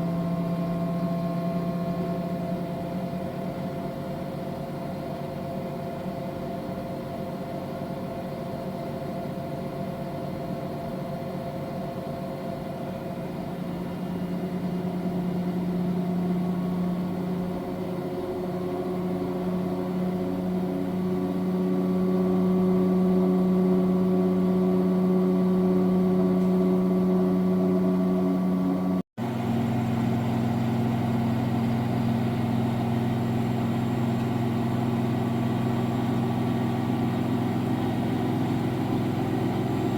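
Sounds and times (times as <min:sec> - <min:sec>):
washing machine humming: 0:12.7 - 0:39.9.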